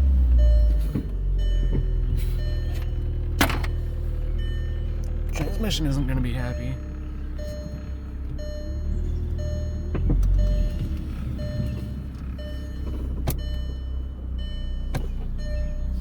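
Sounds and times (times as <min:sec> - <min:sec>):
car engine running: 0:00.0 - 0:16.0
electronic warning chime: 0:03.7 - 0:16.0.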